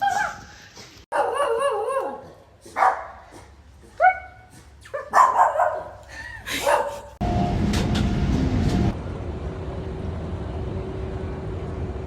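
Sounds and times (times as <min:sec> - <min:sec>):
dog barking: 0:01.1 - 0:06.0, 0:06.6 - 0:07.1
loud rumbling noise: 0:07.2 - 0:12.0.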